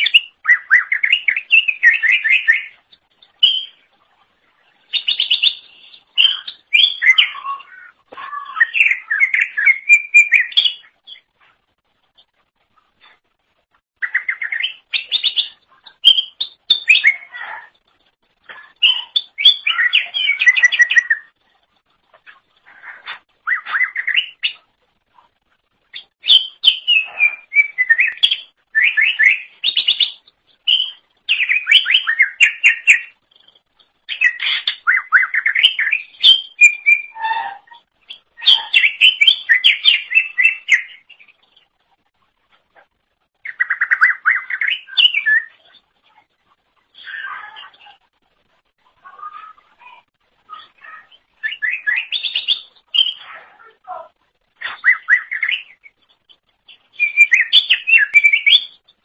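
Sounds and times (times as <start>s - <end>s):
bird chirping and whistling: 0.0s - 2.8s, 3.4s - 3.8s, 4.9s - 11.2s, 14.0s - 17.5s, 18.8s - 21.3s, 23.4s - 24.6s, 26.0s - 33.2s, 34.1s - 41.2s, 43.4s - 45.8s, 50.5s - 53.5s, 54.6s - 56.0s, 56.9s - 58.8s.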